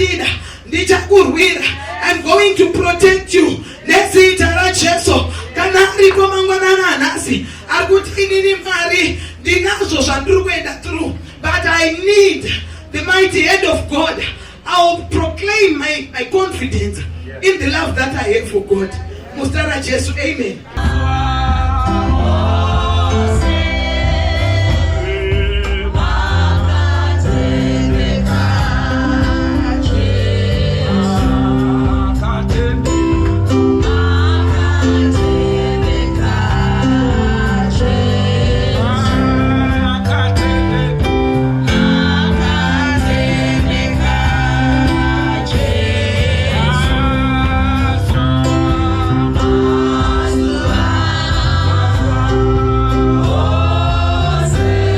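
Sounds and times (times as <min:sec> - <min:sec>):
voices singing together: 0:20.7 - 0:54.9
bass line and beat: 0:20.8 - 0:54.9.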